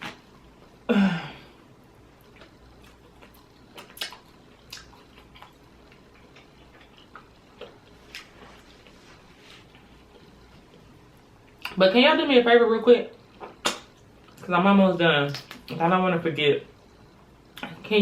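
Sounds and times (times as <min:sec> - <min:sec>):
loud wet eating sound: 0:02.2 - 0:09.0.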